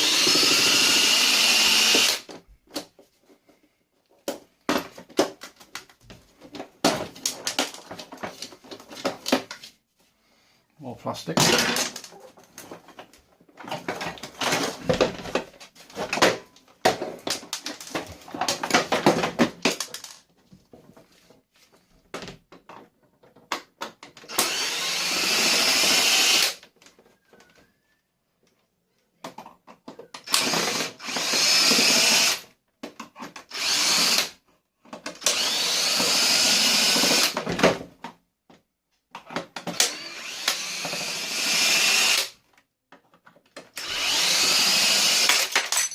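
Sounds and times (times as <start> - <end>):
power drill running: 0.0 - 2.3, 24.3 - 26.6, 30.3 - 32.4, 33.5 - 34.3, 35.2 - 37.4, 39.8 - 42.3, 43.8 - 45.6
plastic parts clattering: 4.1 - 9.8, 11.3 - 21.4, 22.0 - 24.4, 42.4 - 44.2, 45.1 - 45.9.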